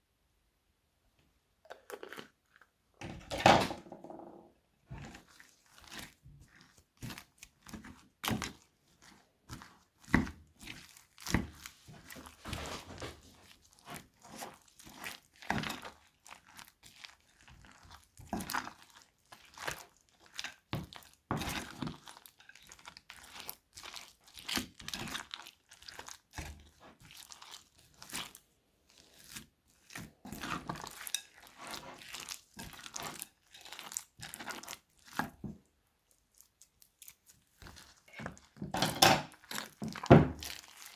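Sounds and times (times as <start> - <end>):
crunchy slime crackling: 13.4 - 35.4, 39.3 - 40.9.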